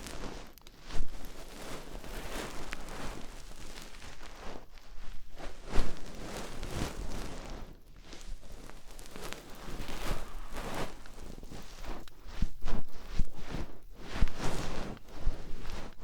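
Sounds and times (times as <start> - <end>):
scraping and rustling in ear: 0.0 - 16.0.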